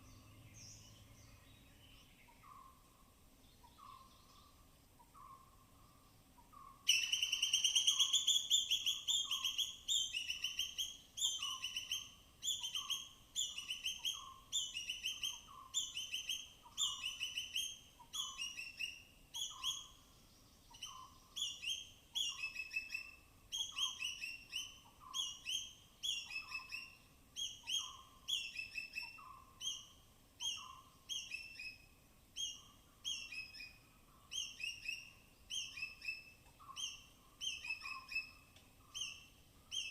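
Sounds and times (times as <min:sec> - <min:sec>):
squirrel alarm chirps: 0:20.7 - 0:39.9.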